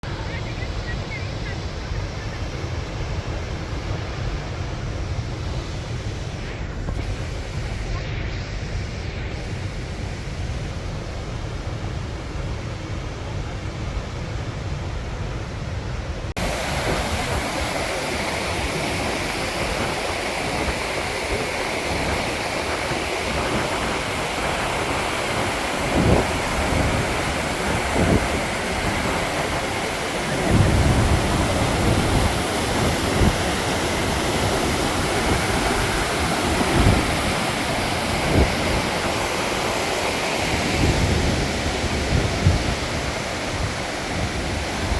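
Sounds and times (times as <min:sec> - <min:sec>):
waterfall rushing: 0:16.3 - 0:44.9.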